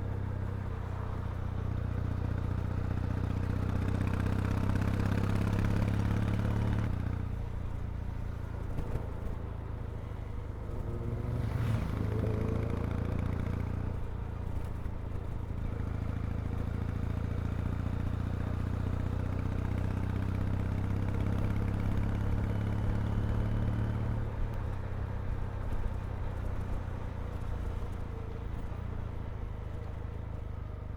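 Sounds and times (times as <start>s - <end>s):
motorcycle engine and exhaust: 0.0s - 30.9s
brief whoosh: 11.1s - 12.6s.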